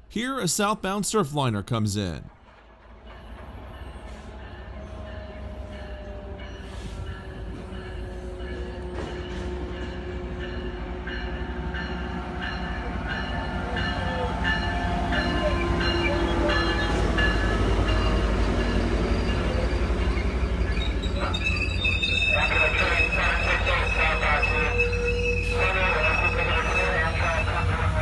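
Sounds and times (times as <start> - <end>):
train bell ringing: 3.2 - 27.8.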